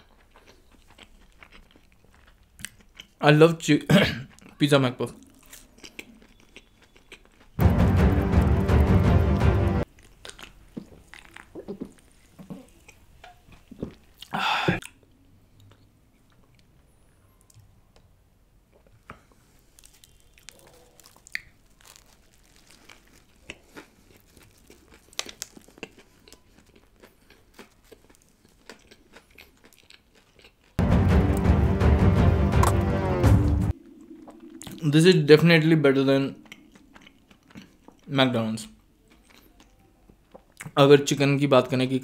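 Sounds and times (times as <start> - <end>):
crunchy biting and chewing: 0.0 - 3.2, 4.3 - 7.6, 9.9 - 15.0, 18.8 - 30.8, 36.0 - 40.8
wet mouth clicks: 33.8 - 34.9, 36.3 - 38.1.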